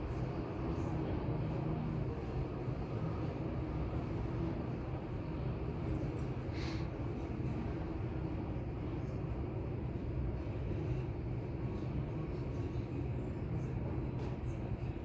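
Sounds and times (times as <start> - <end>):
low background hum and rumble: 0.0 - 15.0.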